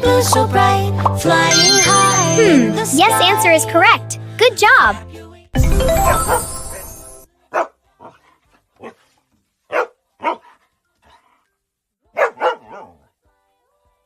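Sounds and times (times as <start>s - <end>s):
dog barking: 7.5s - 8.2s, 8.8s - 9.0s, 9.7s - 11.4s, 12.1s - 13.1s.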